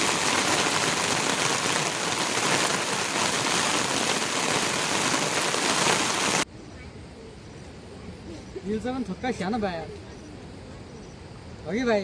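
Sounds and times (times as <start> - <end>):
heavy rain falling: 0.0 - 6.5.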